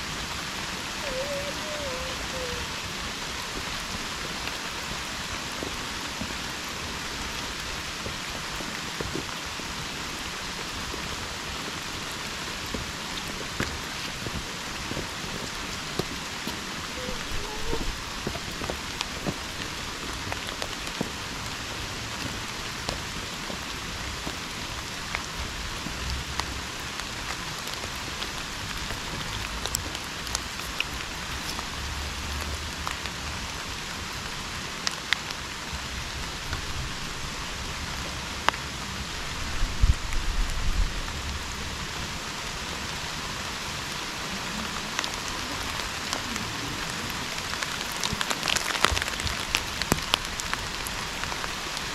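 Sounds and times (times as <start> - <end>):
steady rain: 0.0 - 51.9.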